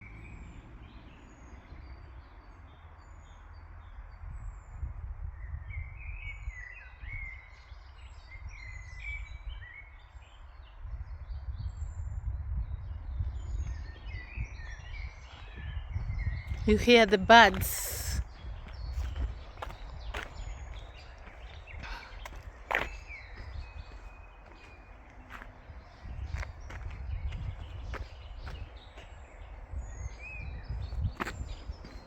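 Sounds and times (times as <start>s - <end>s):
songbirds chirping and singing: 12.5s - 32.0s.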